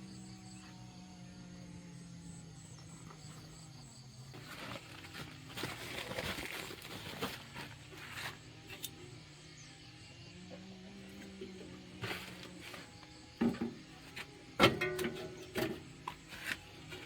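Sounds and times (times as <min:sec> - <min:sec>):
rustling and crackling: 0:04.3 - 0:09.0, 0:11.2 - 0:17.0.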